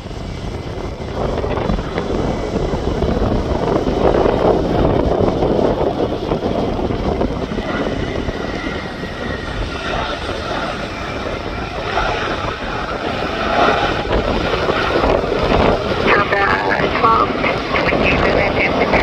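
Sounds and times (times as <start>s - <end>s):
jet engines rushing: 0.0s - 19.0s.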